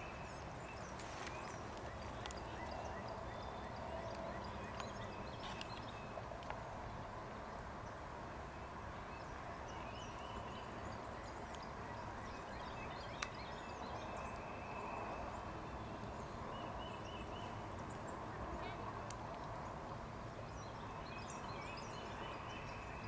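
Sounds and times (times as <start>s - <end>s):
bird chirping: 0.0s - 6.2s, 20.4s - 23.0s
steady background noise: 0.0s - 23.0s.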